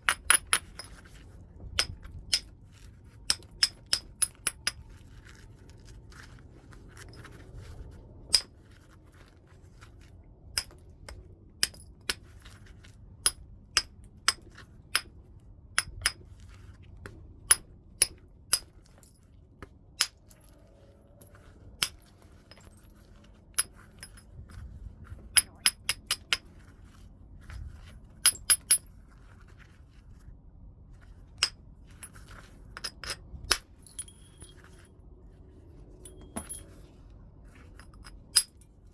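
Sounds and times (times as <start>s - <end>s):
tool striking stone clicks: 0.0s - 1.0s, 1.8s - 2.5s, 3.3s - 4.9s, 11.6s - 12.2s, 13.2s - 15.1s, 15.8s - 16.2s.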